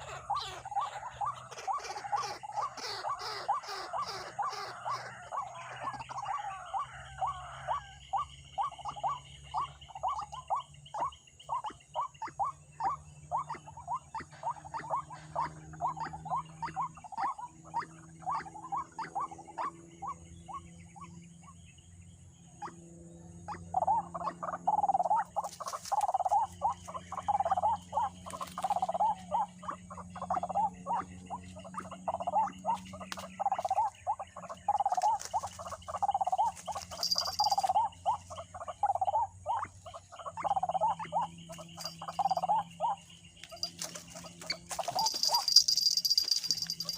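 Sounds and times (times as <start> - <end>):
waterhen harsh repeated calls: 0.0 - 7.9.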